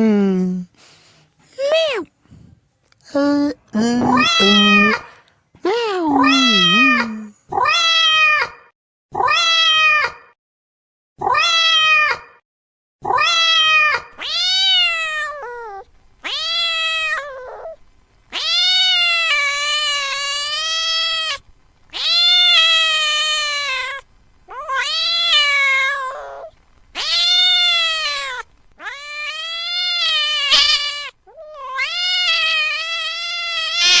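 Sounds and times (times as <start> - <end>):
cat meowing: 4.0 - 5.1, 5.7 - 8.0, 27.0 - 34.0.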